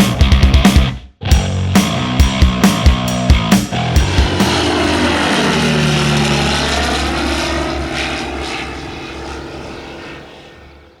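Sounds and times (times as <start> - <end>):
propeller aircraft engine passing: 2.5 - 11.0.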